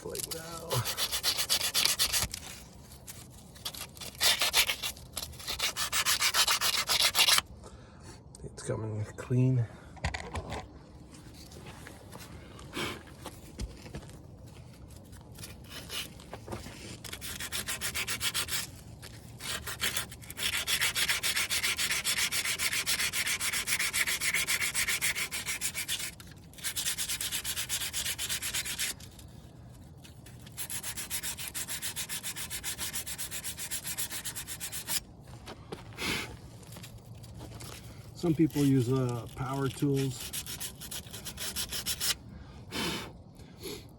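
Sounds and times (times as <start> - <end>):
sandpaper rubbing: 0.0 - 7.4, 15.3 - 35.1, 36.6 - 42.2.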